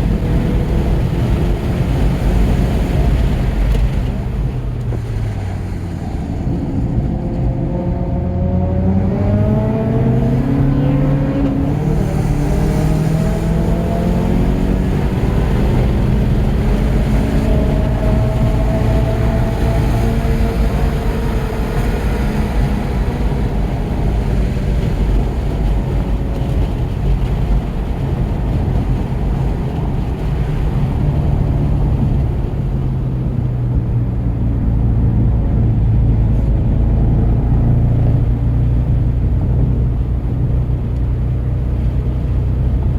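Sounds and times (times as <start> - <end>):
car engine pulling hard: 0.0 - 42.9
road and wind noise: 0.0 - 42.9.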